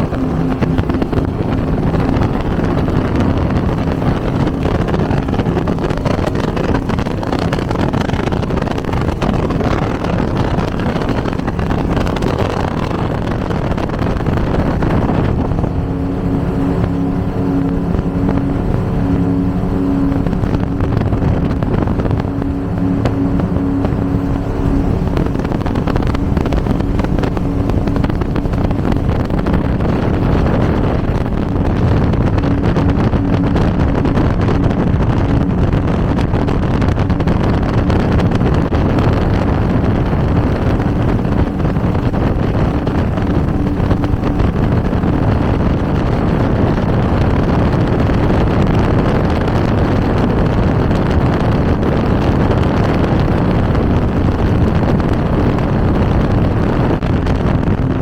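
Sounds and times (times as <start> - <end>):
powerboat engines running: 0.0 - 58.0
wind and water rushing: 0.0 - 58.0.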